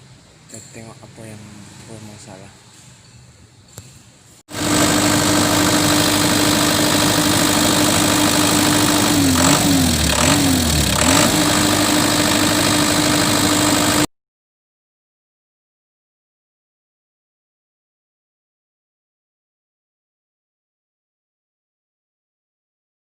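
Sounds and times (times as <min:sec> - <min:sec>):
small generator engine running: 0:04.5 - 0:14.1.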